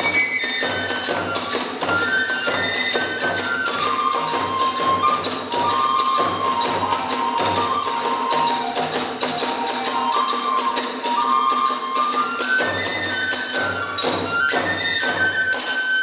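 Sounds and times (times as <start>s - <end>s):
bamboo flute: 0.0s - 16.0s
fast drumming: 0.0s - 16.0s.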